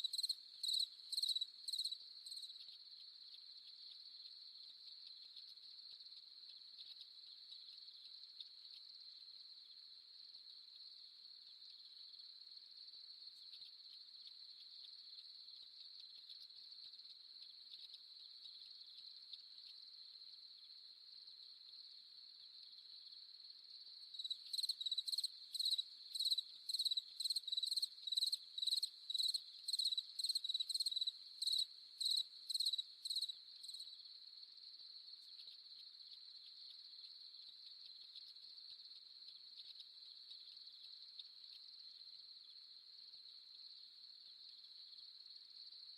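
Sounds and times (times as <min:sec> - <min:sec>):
nearer cricket chirping: 0:00.0 - 0:45.9
crickets trilling: 0:23.9 - 0:34.1.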